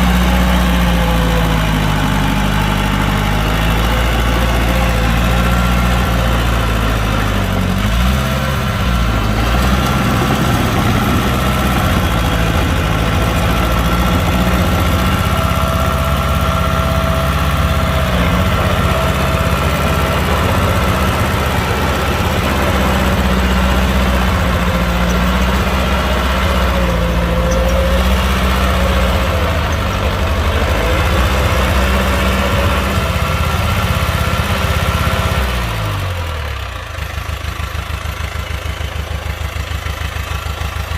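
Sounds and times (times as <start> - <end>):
heavy diesel engines droning: 0.0 - 40.9.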